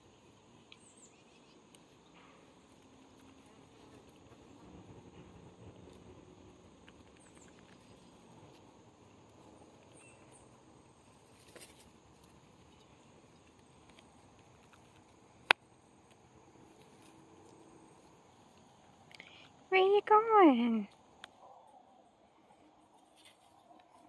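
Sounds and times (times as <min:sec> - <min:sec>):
faint ticks and patters: 0:00.0 - 0:21.8, 0:22.4 - 0:24.0.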